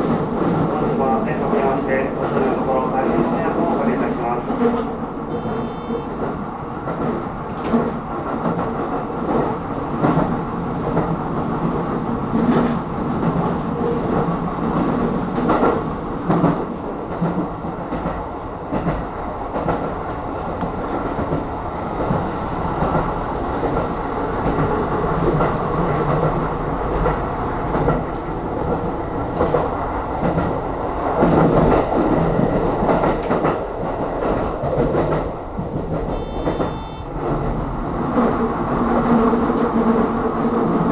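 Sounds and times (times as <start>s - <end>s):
electric train rumble: 0.0s - 40.9s
wheels clacking over rail joints: 6.1s - 40.9s.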